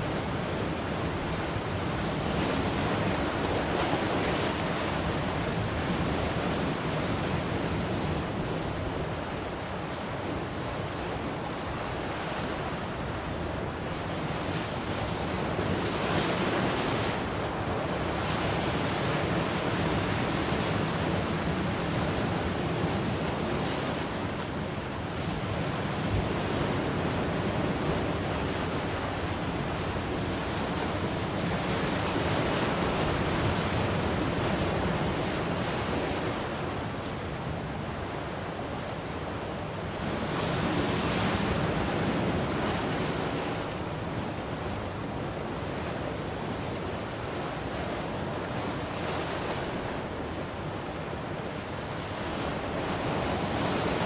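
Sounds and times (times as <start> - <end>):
ocean surf breaking: 39.9 - 54.0.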